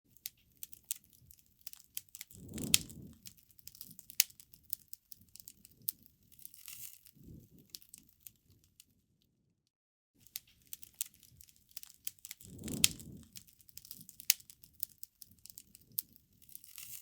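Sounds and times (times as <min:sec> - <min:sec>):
campfire crackling and popping: 0:00.2 - 0:08.6, 0:10.2 - 0:17.0
low rush of flame: 0:02.2 - 0:04.1, 0:07.2 - 0:07.8, 0:12.4 - 0:14.1.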